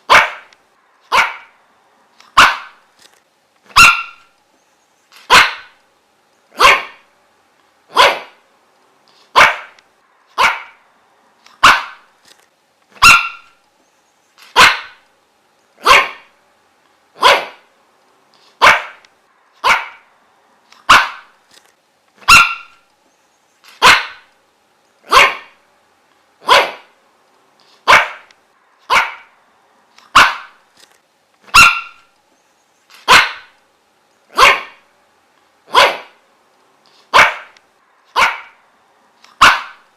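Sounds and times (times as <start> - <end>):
dog barking: 0.0 - 0.5, 1.1 - 1.6, 2.3 - 2.8, 3.7 - 4.3, 5.3 - 5.8, 6.5 - 7.1, 7.9 - 8.4, 9.3 - 9.8, 10.4 - 10.8, 11.6 - 12.1, 13.0 - 13.6, 14.5 - 15.0, 15.8 - 16.3, 17.2 - 17.7, 18.6 - 19.0, 19.6 - 20.1, 20.8 - 21.3, 22.2 - 22.8, 23.8 - 24.3, 25.0 - 25.6, 26.4 - 27.0, 27.8 - 28.3, 28.9 - 29.4, 30.1 - 30.6, 31.5 - 32.1, 33.0 - 33.6, 34.3 - 34.8, 35.7 - 36.2, 37.1 - 38.6, 39.4 - 39.9.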